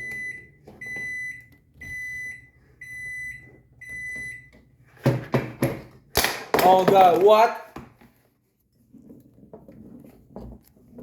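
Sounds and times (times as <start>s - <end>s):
microwave oven beeping: 0.0s - 5.0s.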